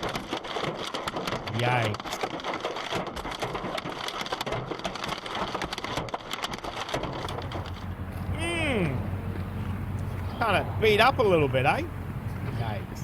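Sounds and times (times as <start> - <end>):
hailstones pelting down: 0.0 - 10.0.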